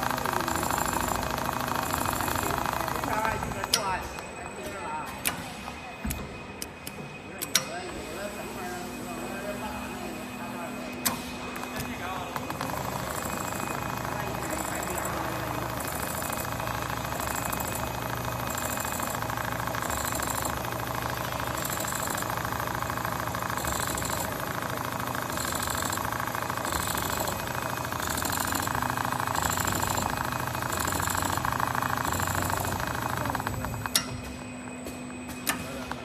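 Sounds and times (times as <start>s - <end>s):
sewing machine needle rattling: 0.0s - 3.6s, 12.6s - 34.0s.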